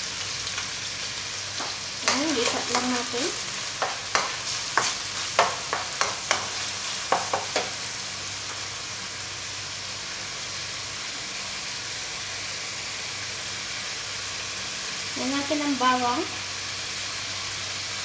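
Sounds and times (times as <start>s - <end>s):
food sizzling in hot oil: 0.0s - 18.0s
wooden spatula scraping a wok: 1.6s - 7.8s.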